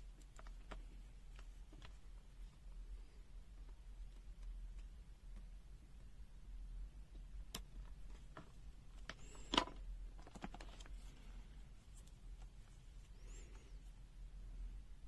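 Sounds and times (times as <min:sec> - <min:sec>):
light clicks and taps: 0:00.1 - 0:02.6.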